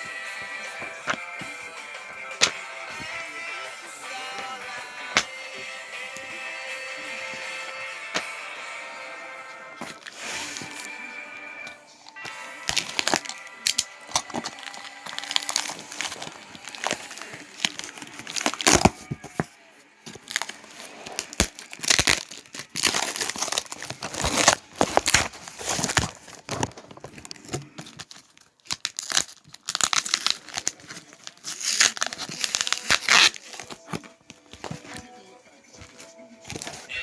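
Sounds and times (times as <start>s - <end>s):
packaging crinkling: 9.8s - 11.0s, 12.1s - 35.0s, 35.9s - 37.0s
packaging tearing: 9.8s - 11.0s, 12.1s - 19.5s, 20.1s - 35.0s, 36.5s - 36.9s.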